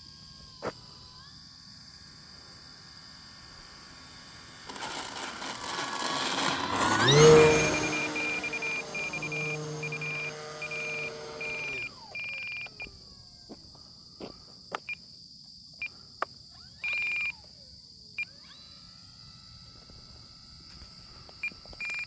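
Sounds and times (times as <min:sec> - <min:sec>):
model airplane electric motor: 0:00.0 - 0:13.5, 0:15.9 - 0:22.0
high insect trill: 0:00.0 - 0:22.0
high electronic beep: 0:07.1 - 0:12.7.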